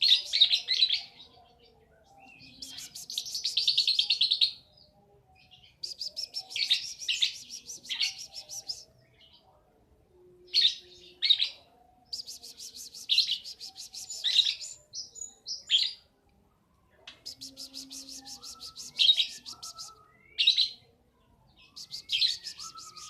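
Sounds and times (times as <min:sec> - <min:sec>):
lovebird chirping rapidly: 0:02.5 - 0:04.2, 0:05.8 - 0:08.8, 0:17.2 - 0:20.0, 0:21.7 - 0:23.0
loud bird calls: 0:17.2 - 0:20.4, 0:21.6 - 0:23.0.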